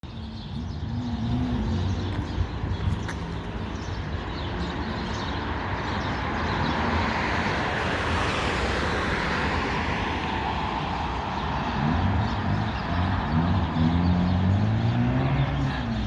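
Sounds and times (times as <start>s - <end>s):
low traffic rumble: 0.0s - 16.0s
vehicle passing: 0.2s - 6.0s.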